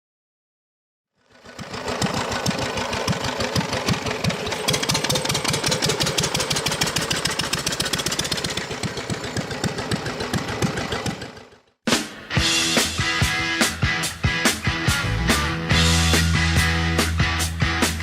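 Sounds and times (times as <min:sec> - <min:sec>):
stationary engine thumping: 0:01.4 - 0:11.8.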